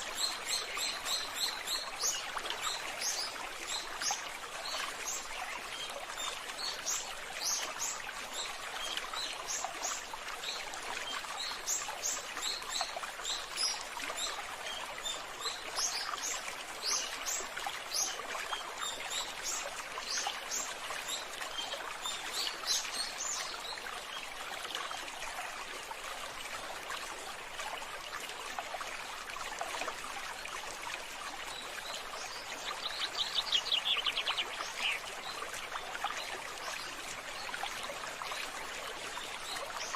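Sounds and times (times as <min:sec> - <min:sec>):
water trickling: 0:00.0 - 0:39.9
small birds chirping: 0:32.2 - 0:35.4.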